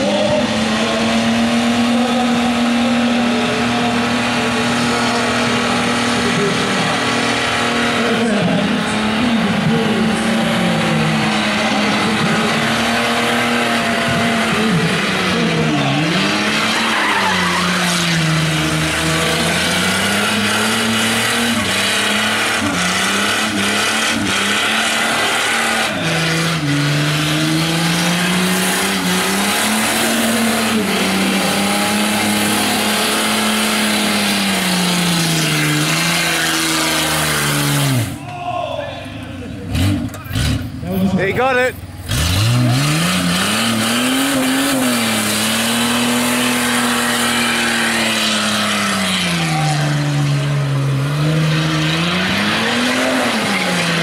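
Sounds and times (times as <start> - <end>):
car engine revving high: 0.0 - 38.3, 39.4 - 54.0
tyres squealing while spinning: 16.4 - 18.7.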